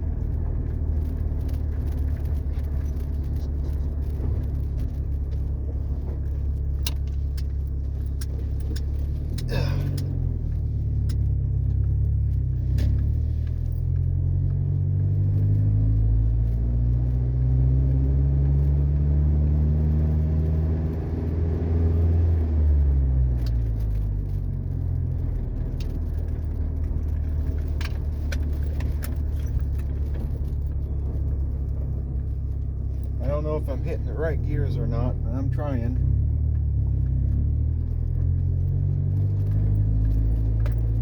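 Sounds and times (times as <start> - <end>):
pickup truck engine accelerating: 0.0 - 41.0
clicks and rattles in cab: 23.4 - 34.8.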